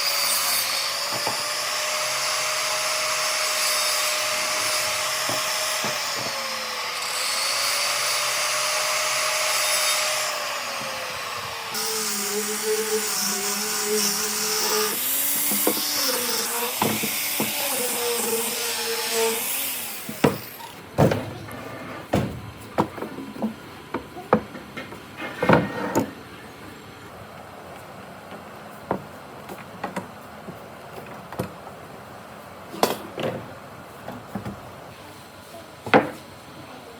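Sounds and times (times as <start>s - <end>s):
electric power tool whining: 0.0s - 20.8s.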